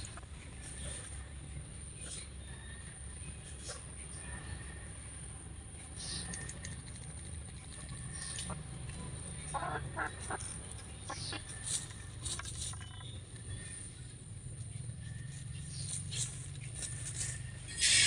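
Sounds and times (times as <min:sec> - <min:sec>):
chicken clucking: 0:00.0 - 0:01.2, 0:07.7 - 0:13.1.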